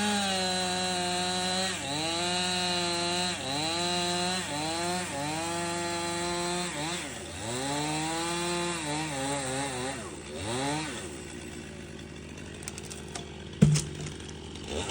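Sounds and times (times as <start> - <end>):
chainsaw cutting wood: 0.0 - 14.9
sharp knock: 13.6 - 14.2.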